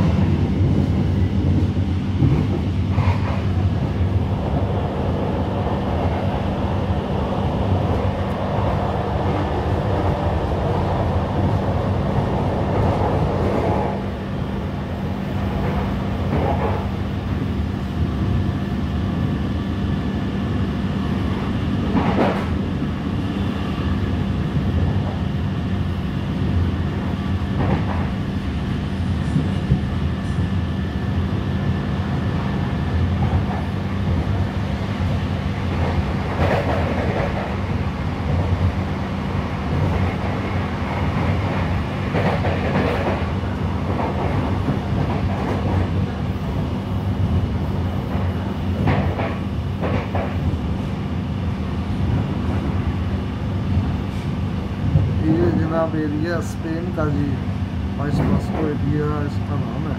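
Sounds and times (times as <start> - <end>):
train wheels rumbling on track: 0.0 - 59.9
train rattle or clack: 1.4 - 4.8, 12.4 - 14.1, 15.4 - 17.0, 21.8 - 22.6, 27.5 - 28.2, 35.6 - 38.6, 39.7 - 46.1, 48.0 - 50.6, 58.0 - 58.8.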